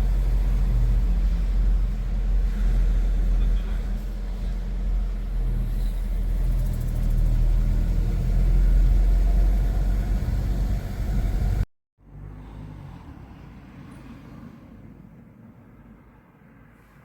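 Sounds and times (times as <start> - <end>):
car driving rumble: 0.0 - 11.7.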